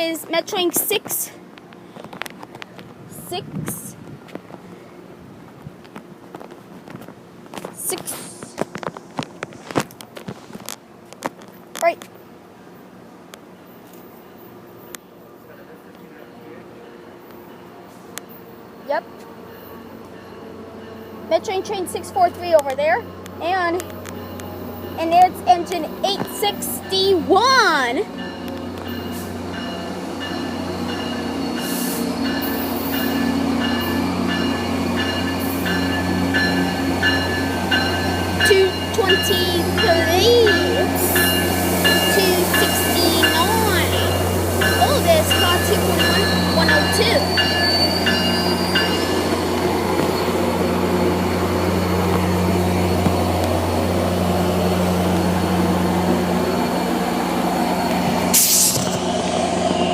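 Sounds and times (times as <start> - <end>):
diesel locomotive engine drone: 0.0 - 59.9
locomotive bell ringing: 16.8 - 58.1.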